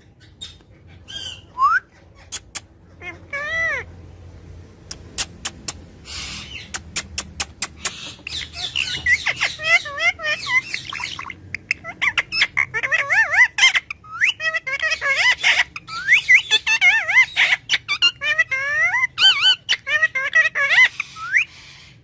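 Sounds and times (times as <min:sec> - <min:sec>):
parrot squawk: 0:00.1 - 0:03.9, 0:05.0 - 0:22.0
parrot chirps and whistles: 0:00.4 - 0:03.8, 0:05.1 - 0:21.9
parrot sharp clicks: 0:04.9 - 0:05.8, 0:06.7 - 0:08.3.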